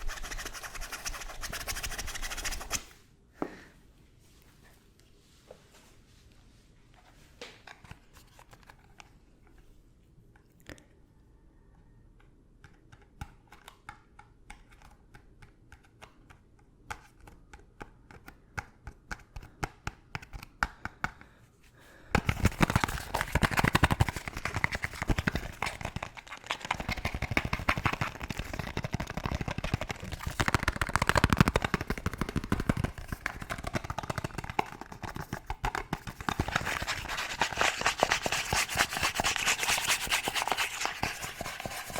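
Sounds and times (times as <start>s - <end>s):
fast aggressive scratching: 0.0s - 2.9s, 22.2s - 41.9s.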